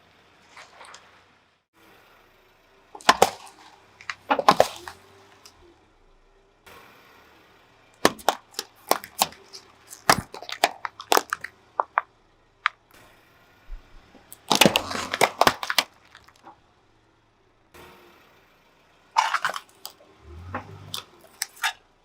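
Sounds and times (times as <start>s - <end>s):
car tyre crushing brittle objects: 0.2s - 1.5s, 2.9s - 5.6s, 7.9s - 18.2s, 18.8s - 22.0s.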